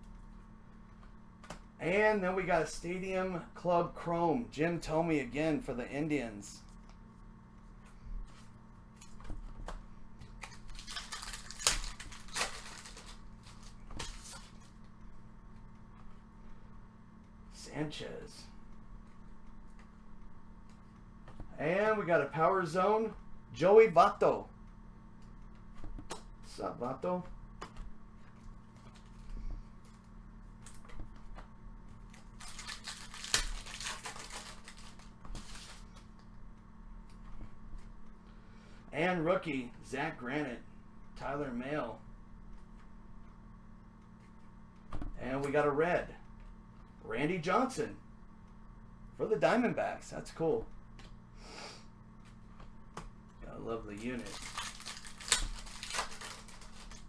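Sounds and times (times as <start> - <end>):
papery rustle of cards: 8.3 - 14.8, 27.7 - 36.2, 53.8 - 57.0
foil wrapper crinkling and tearing: 10.4 - 14.7, 32.1 - 35.9, 53.9 - 57.0.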